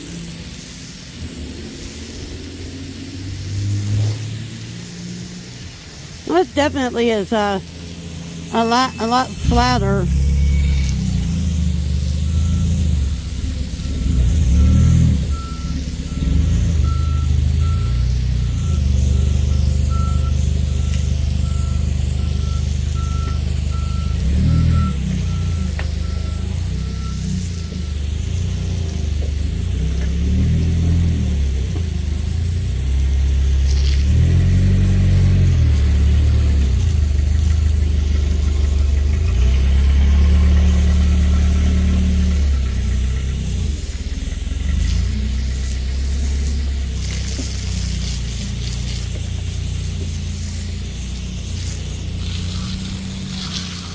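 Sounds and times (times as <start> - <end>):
reversing alarm beeping: 8.6 - 11.3, 12.3 - 13.3, 14.0 - 28.1.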